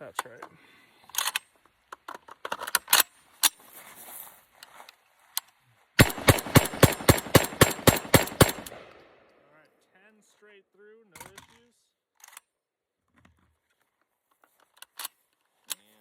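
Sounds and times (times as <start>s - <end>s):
shotgun clicking and rattling: 1.1s - 3.6s, 6.0s - 9.0s, 11.2s - 12.5s, 14.6s - 15.9s
rapid shotgun shots: 6.0s - 9.2s.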